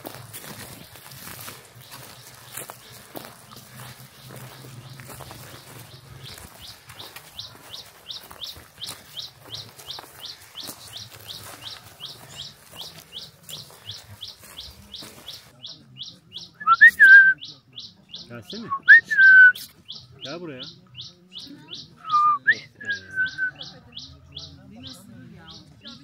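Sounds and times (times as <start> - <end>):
footsteps: 0.0 - 15.6
bird chirping high: 19.8 - 26.0.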